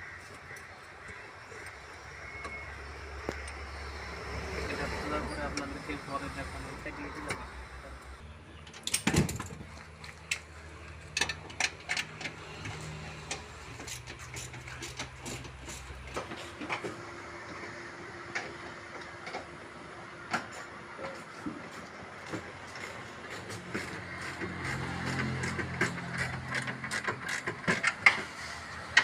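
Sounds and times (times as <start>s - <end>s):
tools clicking on car parts: 8.6s - 17.0s, 22.8s - 29.0s.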